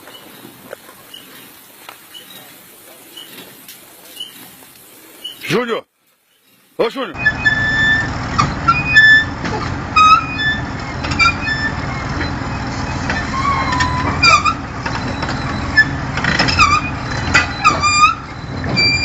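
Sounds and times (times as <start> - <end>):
truck engine rumbling: 7.1 - 19.0
short high-pitched squeaks: 7.2 - 19.0.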